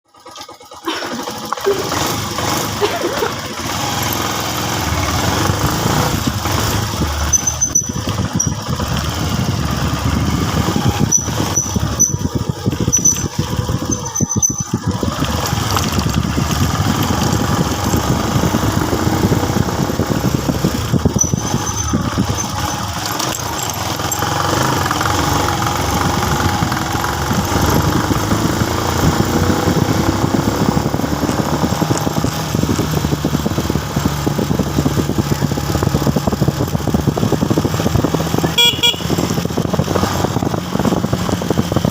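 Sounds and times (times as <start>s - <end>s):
motorcycle engine running: 0.1s - 41.9s
road and wind noise: 1.2s - 41.9s
short high squeaks: 6.5s - 8.8s, 10.3s - 15.8s, 21.1s - 24.8s.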